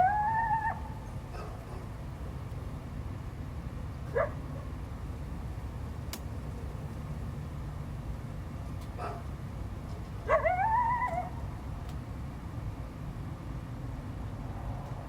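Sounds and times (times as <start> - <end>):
coyote yelping and howling: 0.0 - 1.5, 10.2 - 11.5.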